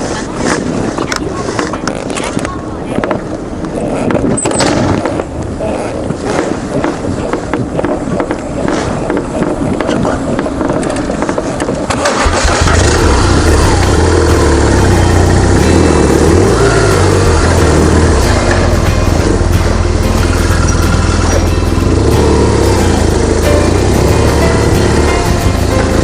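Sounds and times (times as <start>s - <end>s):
motorcycle engine starting and idling: 11.9s - 26.0s.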